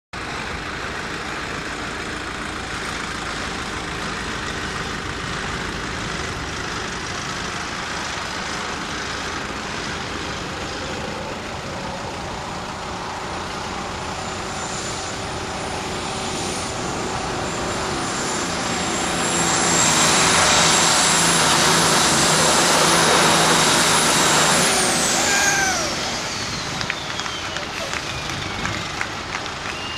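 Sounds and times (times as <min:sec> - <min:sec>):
truck engine under load: 0:00.2 - 0:29.9
high whistle: 0:25.2 - 0:29.9.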